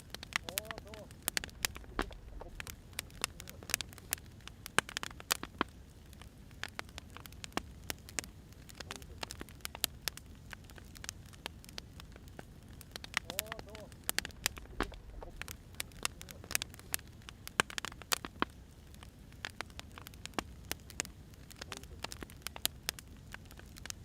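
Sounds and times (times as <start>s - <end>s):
soft low rumble: 0.0s - 17.4s
wood fire crackling: 0.0s - 24.0s.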